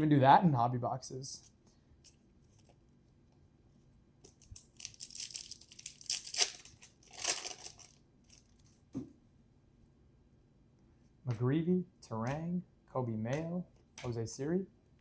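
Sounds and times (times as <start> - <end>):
wrapper rustle: 4.4 - 8.8
wrapper tearing and crinkling: 4.4 - 8.8.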